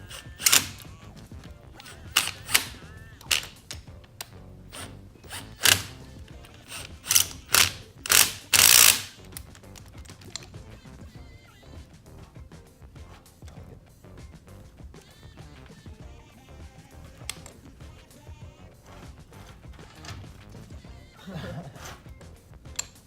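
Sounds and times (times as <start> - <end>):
clanks of hand tools and metal parts: 0.1 - 0.9, 1.8 - 3.8, 4.7 - 10.5, 19.0 - 20.7, 22.7 - 23.0
scraping rattle: 18.7 - 20.8.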